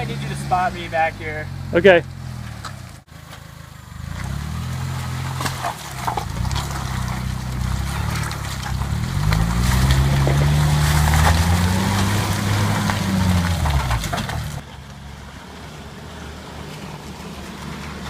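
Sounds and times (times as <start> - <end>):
car engine under load: 0.0 - 18.0.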